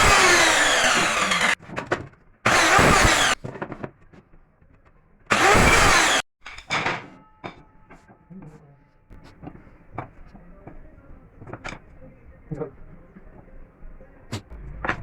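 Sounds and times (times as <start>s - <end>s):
woodworking power tool running: 0.0s - 1.6s, 2.5s - 3.4s, 5.3s - 6.2s.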